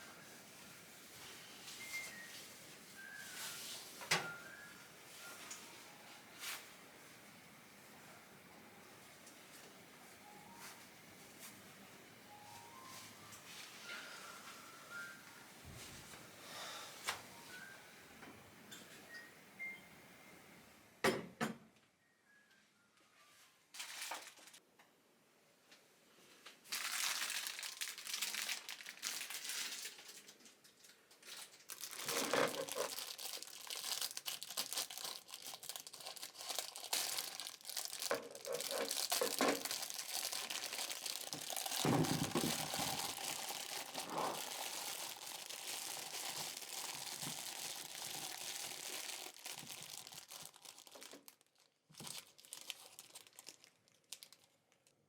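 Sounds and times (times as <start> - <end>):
crinkly material rustling: 0.0 - 7.3, 23.7 - 24.6, 26.6 - 55.0.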